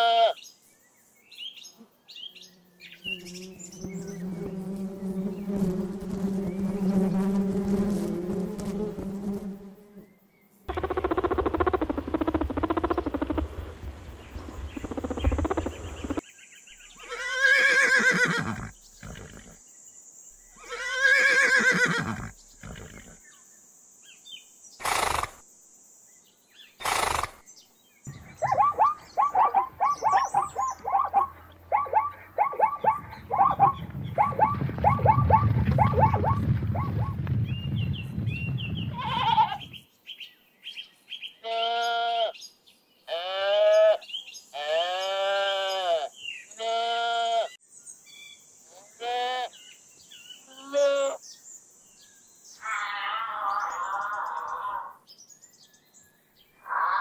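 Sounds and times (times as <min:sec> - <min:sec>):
sheep bleating: 0:00.0 - 0:00.4, 0:38.9 - 0:39.7, 0:41.4 - 0:42.4, 0:43.1 - 0:44.0, 0:44.6 - 0:47.5
low rumble of running herd: 0:10.7 - 0:16.2, 0:32.8 - 0:39.7
zebras calling: 0:10.7 - 0:16.2, 0:28.1 - 0:37.2
horse whinnying: 0:17.0 - 0:19.6, 0:20.6 - 0:23.2.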